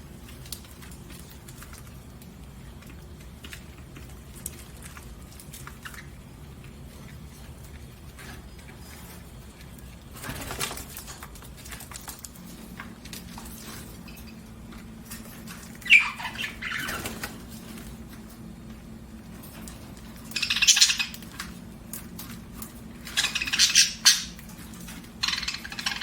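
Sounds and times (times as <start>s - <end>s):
budgerigar rustling: 0.2s - 26.0s
budgerigar chirp: 15.8s - 17.0s, 20.3s - 21.2s, 23.1s - 24.4s, 25.2s - 26.0s.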